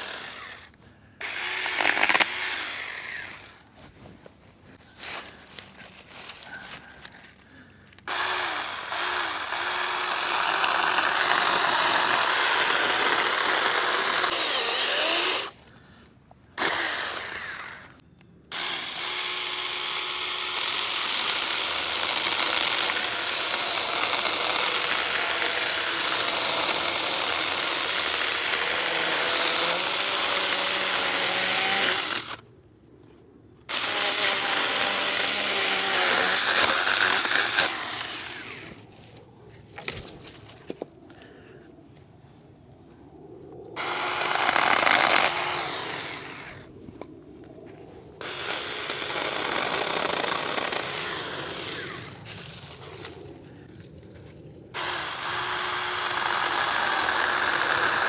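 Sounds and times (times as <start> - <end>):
electric chainsaw cutting branches: 0.0 - 3.6, 8.1 - 15.6, 16.6 - 32.4, 33.7 - 38.8, 43.8 - 46.7, 48.2 - 53.2, 54.8 - 58.0.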